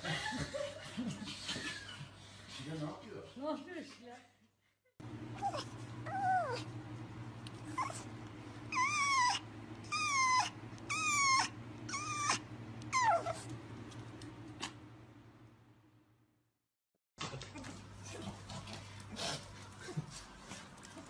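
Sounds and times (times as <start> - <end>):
dog whining: 5.3 - 6.8, 7.6 - 13.6.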